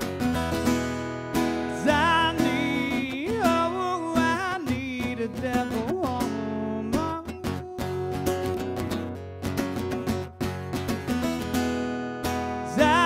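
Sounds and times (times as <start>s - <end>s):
lead guitar with bending notes: 0.0s - 13.0s
strummed guitar chords: 0.0s - 13.0s
person singing: 1.5s - 9.0s, 12.5s - 13.0s.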